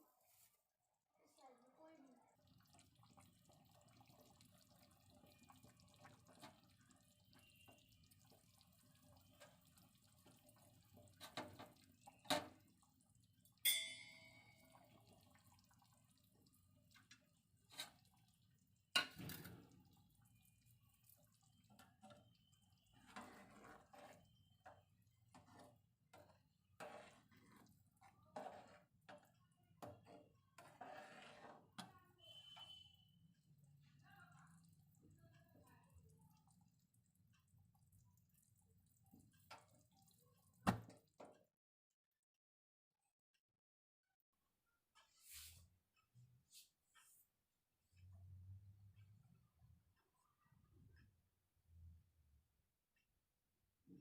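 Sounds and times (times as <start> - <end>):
ringing metal clink: 13.6 - 14.6.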